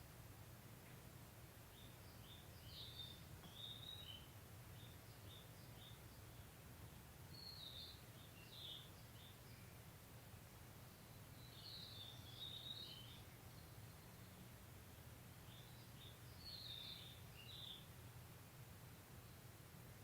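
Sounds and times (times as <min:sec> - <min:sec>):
birds chirping: 0:01.6 - 0:06.6, 0:07.2 - 0:09.9, 0:10.8 - 0:18.0.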